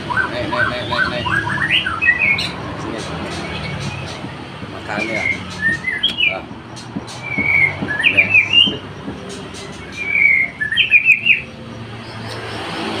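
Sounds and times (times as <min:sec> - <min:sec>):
kingfisher calling: 0:00.0 - 0:13.0.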